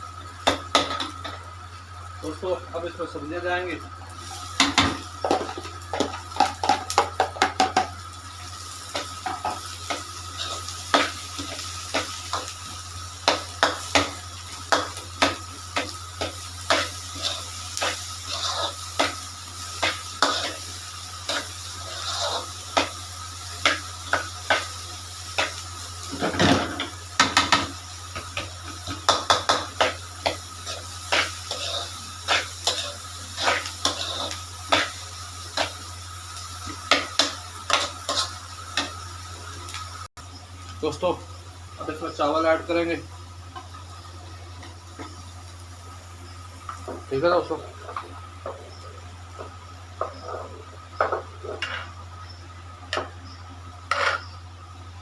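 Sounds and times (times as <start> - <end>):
oil sizzling: 0.0 - 55.0
metal spatula scraping a wok: 16.7 - 23.0, 30.6 - 35.8, 36.9 - 39.0, 53.9 - 54.3.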